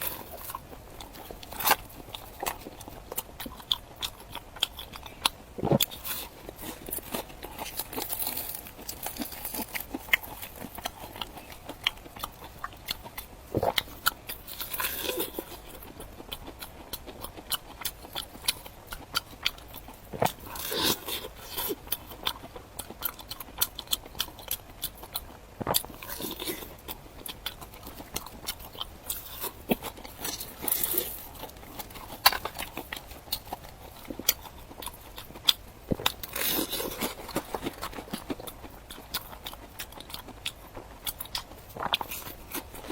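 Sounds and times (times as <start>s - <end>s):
crunchy food being eaten: 0.0s - 42.9s.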